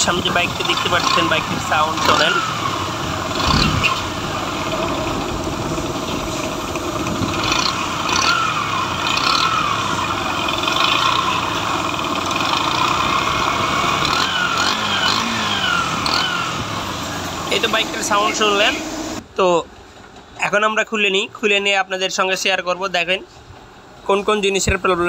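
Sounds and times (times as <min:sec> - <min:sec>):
motorcycle engine idling: 0:00.0 - 0:19.2.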